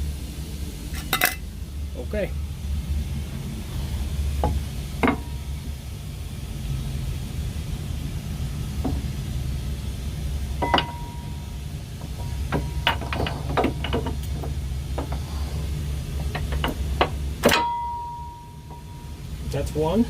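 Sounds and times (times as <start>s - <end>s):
low rumble: 0.0s - 19.8s
metal clinks and knocks: 10.6s - 19.2s.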